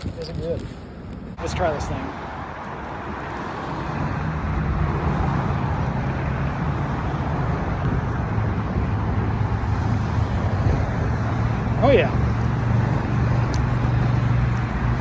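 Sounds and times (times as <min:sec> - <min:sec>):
traffic noise: 0:00.0 - 0:15.0.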